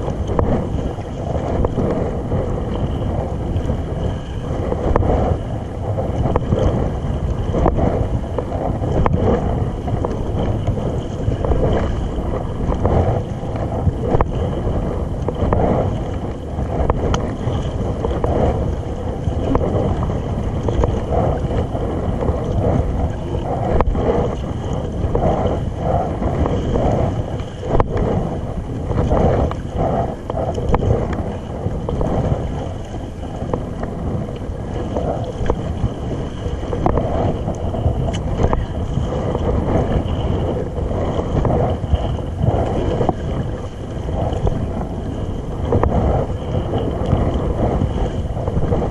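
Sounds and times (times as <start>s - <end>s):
water splashing along kayak hull: 0.0s - 48.9s
wind on microphone: 0.0s - 48.9s.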